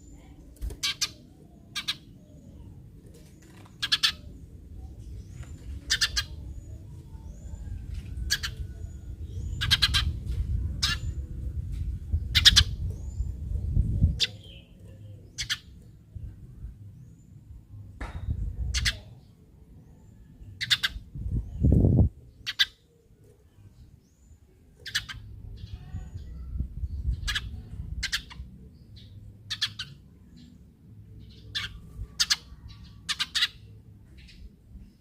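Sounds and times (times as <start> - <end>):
sparrow chirping: 0.0 - 2.9, 3.7 - 17.4, 18.3 - 19.2, 19.8 - 23.0, 23.6 - 35.0
low background rumble: 1.2 - 22.4.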